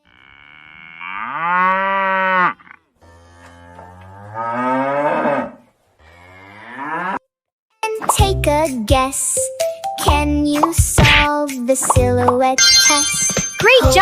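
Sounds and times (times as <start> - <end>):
cow mooing: 0.0 - 7.2.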